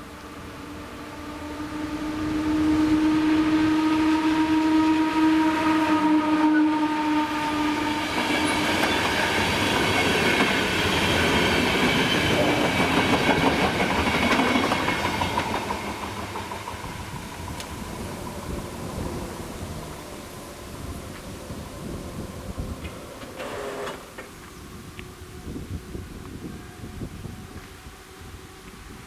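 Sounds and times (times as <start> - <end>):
train horn: 0.0 - 15.5, 16.9 - 29.0
train wheels on rails: 7.1 - 29.0.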